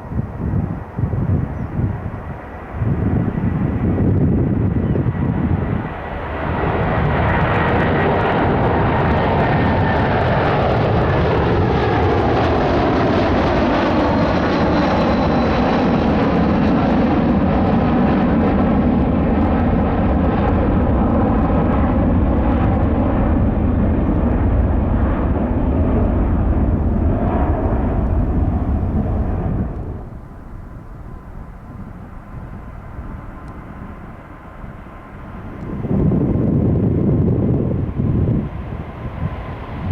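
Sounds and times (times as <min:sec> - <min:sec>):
distant jet rumble: 0:00.0 - 0:39.9
jet engines rushing and whining: 0:00.0 - 0:39.9.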